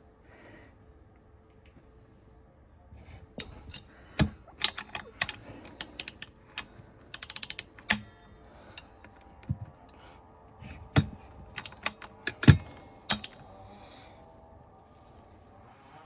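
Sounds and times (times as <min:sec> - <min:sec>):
ratchet wrench clicking: 0:03.4 - 0:09.2, 0:11.0 - 0:13.4
metal clicks and knocks: 0:03.4 - 0:10.0, 0:10.8 - 0:13.4.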